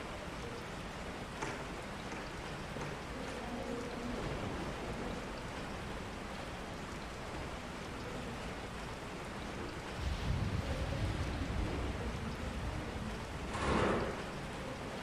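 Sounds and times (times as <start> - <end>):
steady rain falling: 0.0 - 15.0
low rumble: 10.0 - 14.4.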